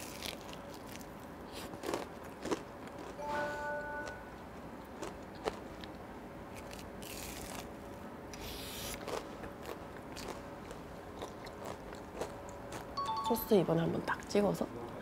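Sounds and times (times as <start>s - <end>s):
chewing and crunching: 0.0s - 3.2s, 4.8s - 13.0s.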